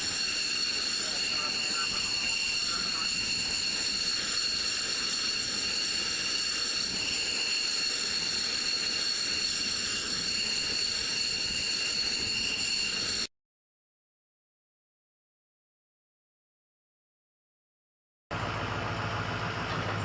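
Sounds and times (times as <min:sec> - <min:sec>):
jet engine whine: 0:00.0 - 0:13.3, 0:18.3 - 0:20.0.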